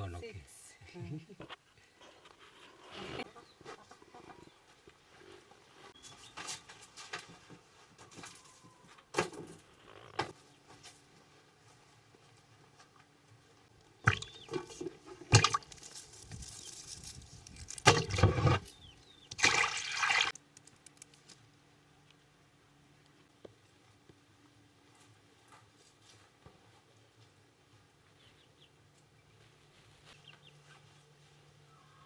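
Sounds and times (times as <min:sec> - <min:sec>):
water pouring and splashing: 0:14.1 - 0:15.8, 0:17.7 - 0:18.7, 0:19.3 - 0:20.4.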